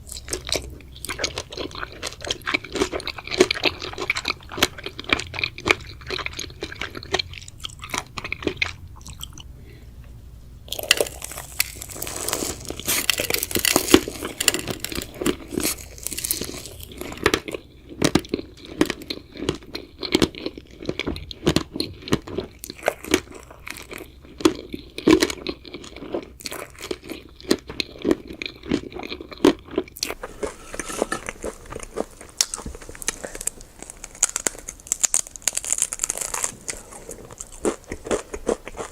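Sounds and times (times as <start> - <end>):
crunchy snack chewing: 0.0 - 9.4, 10.7 - 38.9.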